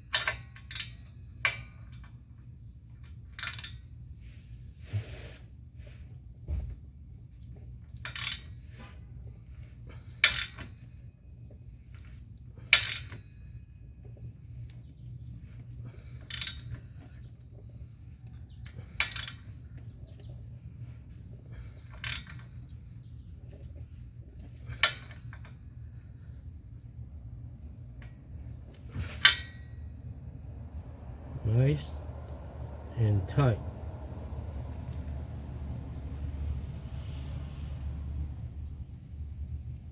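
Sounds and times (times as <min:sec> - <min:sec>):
wrench clicking: 0:03.4 - 0:03.8, 0:19.0 - 0:19.5.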